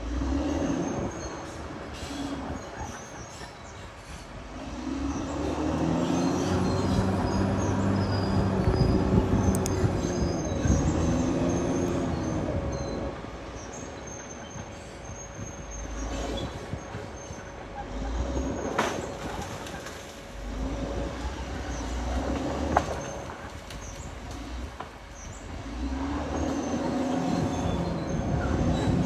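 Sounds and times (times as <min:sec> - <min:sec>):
steel tracks squealing: 0:00.0 - 0:24.0, 0:25.1 - 0:29.0
bulldozer diesel engine: 0:00.0 - 0:29.0.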